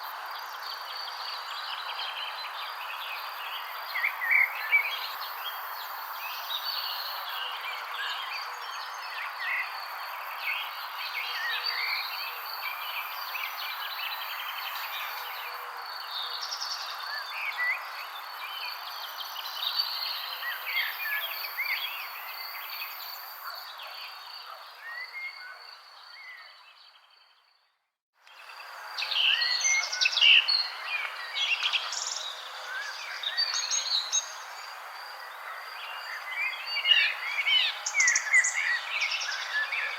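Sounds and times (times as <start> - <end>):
small birds chirping: 28.3 - 39.9.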